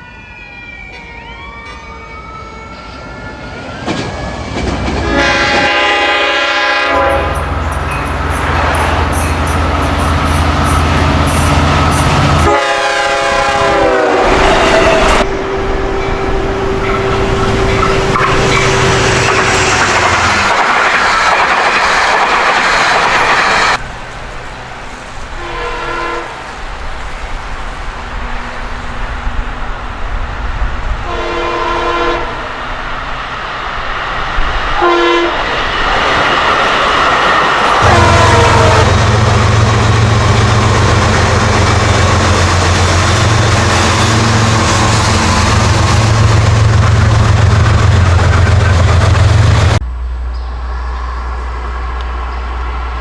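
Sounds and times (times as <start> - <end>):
diesel locomotive engine running: 3.8 - 53.0
train horn: 5.0 - 20.5, 25.3 - 26.4, 30.9 - 32.6, 34.7 - 35.5, 37.7 - 48.7
train wheels clacking over rail joints: 16.8 - 25.4.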